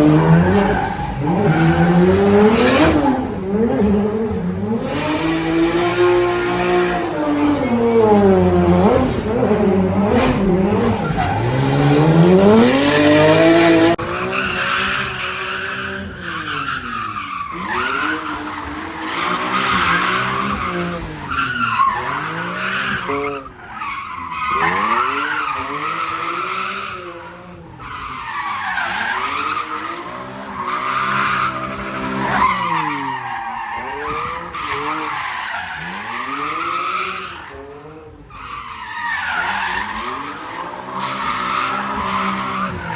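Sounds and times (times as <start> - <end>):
car engine revving: 0.0 - 23.3.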